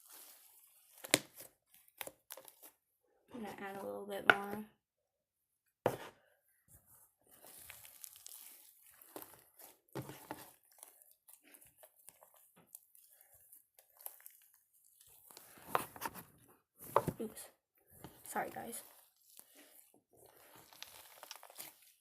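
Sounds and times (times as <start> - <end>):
sticky slime crackles and squelches: 0.0 - 2.8, 7.2 - 22.0.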